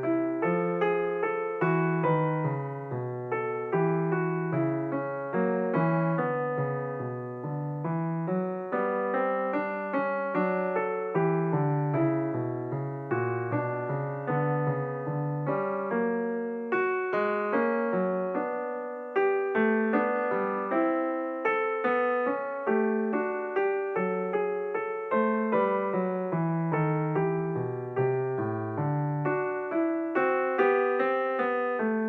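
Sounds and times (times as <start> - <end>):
slow solo piano: 0.0 - 32.0.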